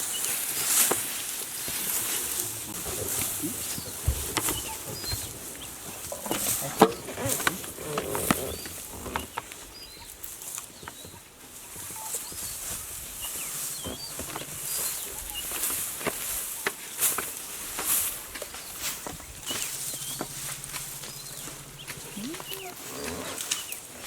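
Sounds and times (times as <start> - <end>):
bird chirps: 3.4 - 7.1, 10.9 - 15.9, 18.5 - 23.7.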